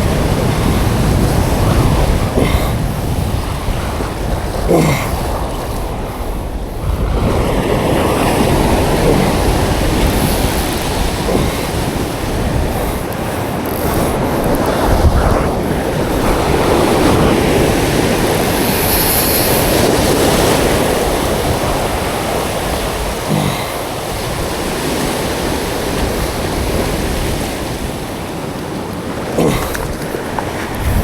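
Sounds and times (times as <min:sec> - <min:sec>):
sea surf washing: 0:00.0 - 0:31.0
wind buffeting microphone: 0:00.0 - 0:31.0.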